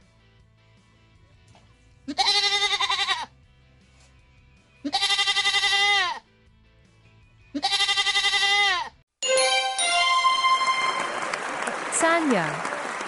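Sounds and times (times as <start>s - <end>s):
goat bleating: 2.1s - 3.3s, 4.8s - 6.2s, 7.5s - 9.0s
short musical jingle: 9.2s - 11.5s.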